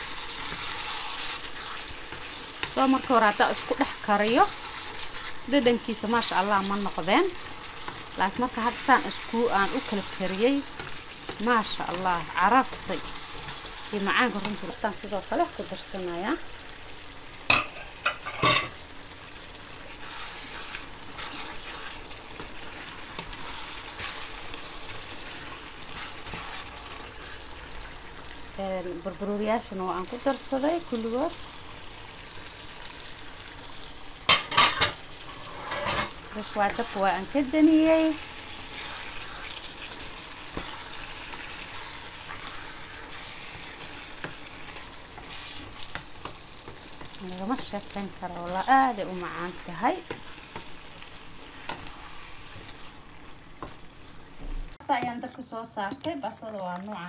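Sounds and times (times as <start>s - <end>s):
food sizzling in a hot pan: 0.0s - 57.0s
soft scraping while stirring: 19.9s - 27.5s, 34.6s - 37.3s, 38.2s - 47.7s, 50.0s - 54.5s.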